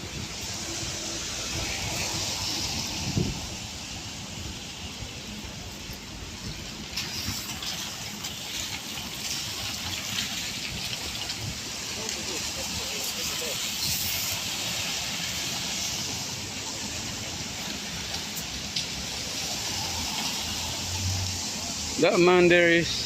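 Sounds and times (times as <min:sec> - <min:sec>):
tyres hissing on wet road: 0:00.0 - 0:23.0.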